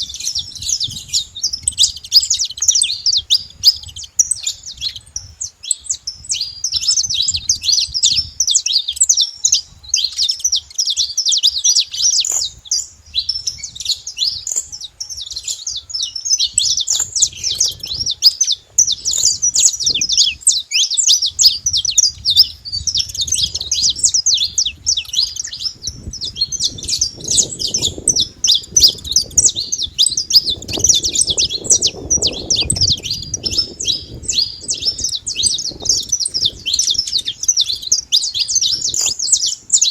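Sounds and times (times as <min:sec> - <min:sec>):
finches chirping and singing: 0:00.0 - 0:39.9.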